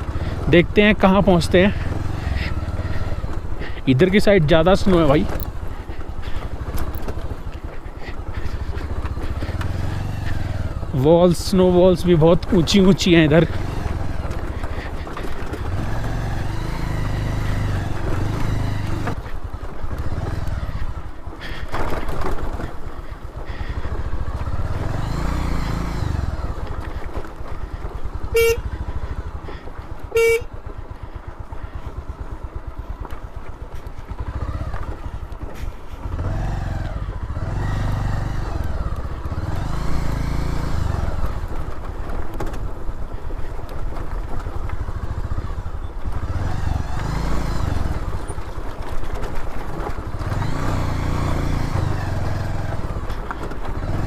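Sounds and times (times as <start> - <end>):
motorcycle engine revving: 0.0 - 54.0
horn beeping: 28.3 - 28.8, 30.1 - 30.6.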